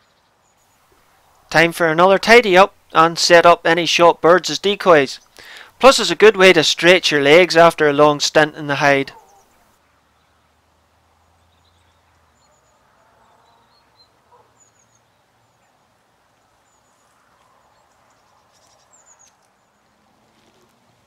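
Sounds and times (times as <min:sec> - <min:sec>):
small bird chirping: 0:11.4 - 0:15.6, 0:16.5 - 0:20.5
soft rustles: 0:16.3 - 0:21.0.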